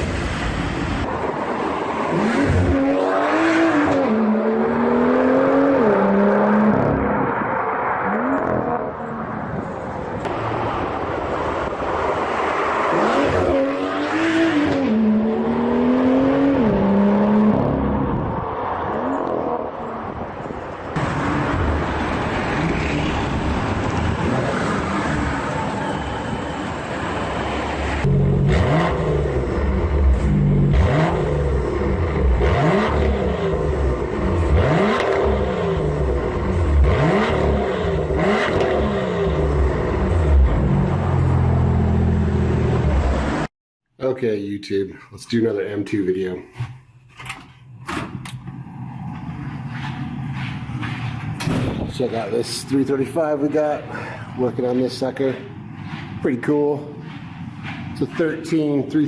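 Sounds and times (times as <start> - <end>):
car engine accelerating through gears: 2.1 - 9.2, 28.0 - 43.5.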